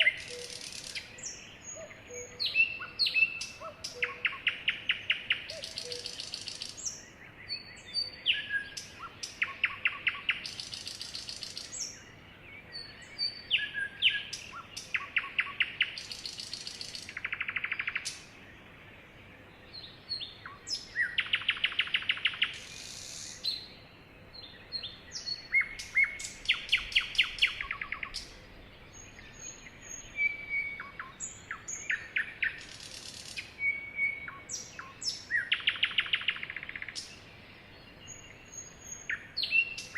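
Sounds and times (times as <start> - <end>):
sparrows chirping and trilling: 19.4 - 39.9.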